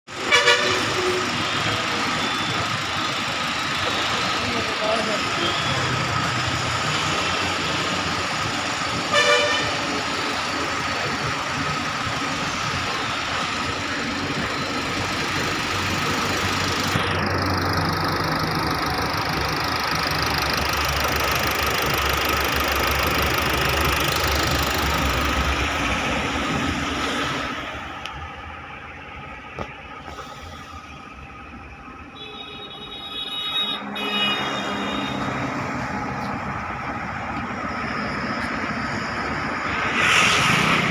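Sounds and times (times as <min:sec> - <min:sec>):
car horn toot: 0:00.2 - 0:01.2, 0:09.1 - 0:09.8, 0:32.2 - 0:35.4
car engine running: 0:09.8 - 0:26.6.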